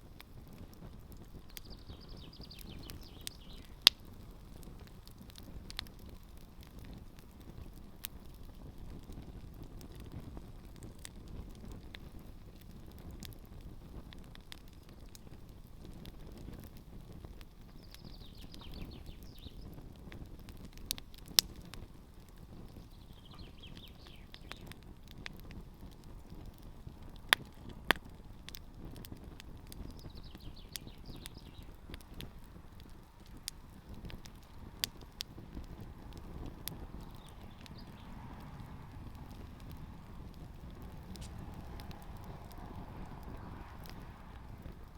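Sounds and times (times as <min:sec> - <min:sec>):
campfire crackling: 0:00.0 - 0:44.9
sharp pops from fire: 0:00.0 - 0:44.9
bird singing: 0:01.5 - 0:03.8, 0:17.8 - 0:19.7, 0:22.8 - 0:24.7, 0:30.0 - 0:31.7, 0:37.0 - 0:38.1.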